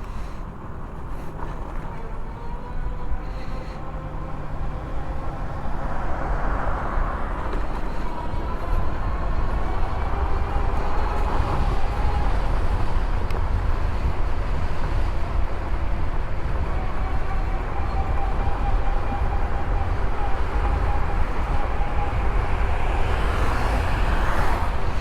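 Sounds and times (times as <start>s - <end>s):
wind rumbling on microphone: 0.0s - 25.0s
electric motor whine: 1.9s - 24.8s.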